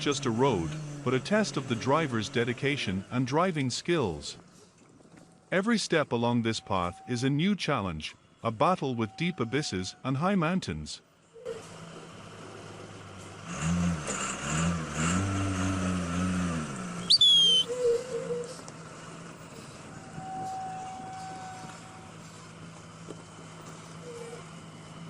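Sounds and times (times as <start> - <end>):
truck engine running: 0.0 - 4.4, 11.6 - 25.0
loud high-pitched squeal: 17.0 - 18.5.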